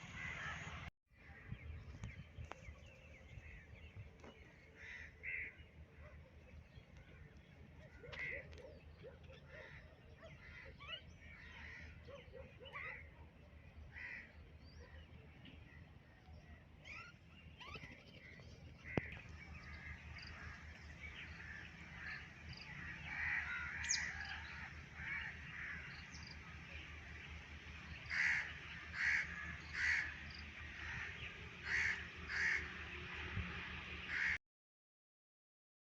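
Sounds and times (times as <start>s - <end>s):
birds chirping and calling: 0.0s - 33.4s
loud harsh bird calls: 7.9s - 15.0s, 16.8s - 33.0s, 34.0s - 34.4s.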